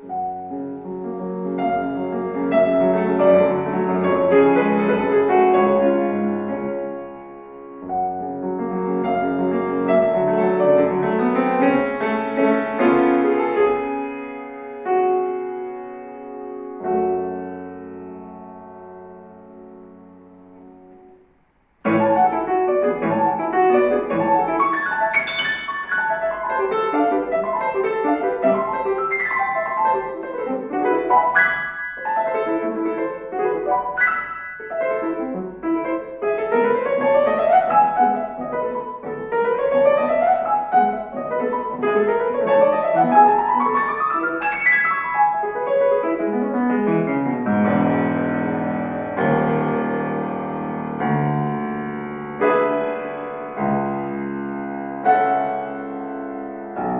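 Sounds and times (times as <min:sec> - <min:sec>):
solo classical piano: 0:00.0 - 0:56.9.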